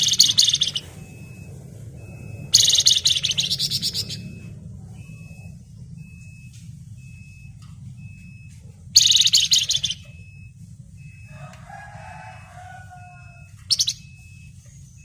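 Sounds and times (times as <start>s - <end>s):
songbird trilling and warbling: 0.0s - 5.6s, 9.0s - 10.2s, 12.8s - 15.0s.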